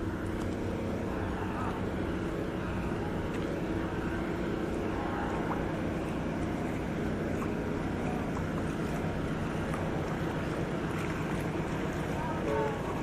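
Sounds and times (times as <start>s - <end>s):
steady engine drone: 0.0s - 13.0s
wash of noise: 0.0s - 13.0s.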